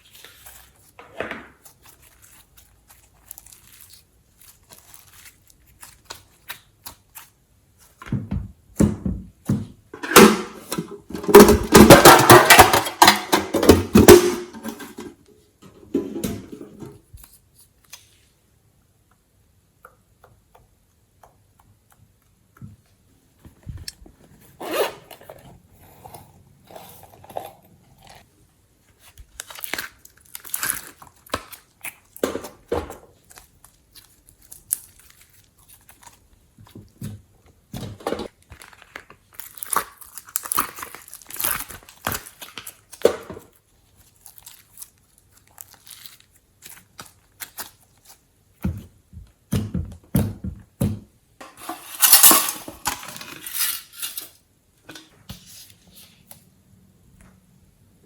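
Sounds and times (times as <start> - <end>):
slime squishing with sticky crackles: 0.0 - 8.0, 25.5 - 49.5.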